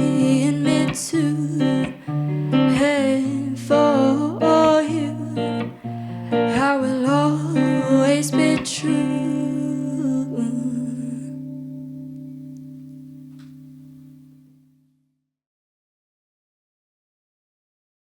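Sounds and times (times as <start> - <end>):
person singing: 0.0 - 12.4
acoustic guitar chords: 0.0 - 14.9.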